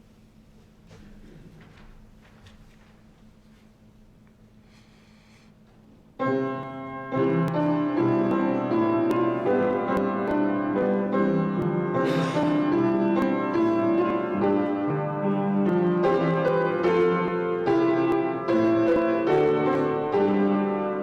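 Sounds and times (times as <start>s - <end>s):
piano chords and melody: 6.2s - 21.0s.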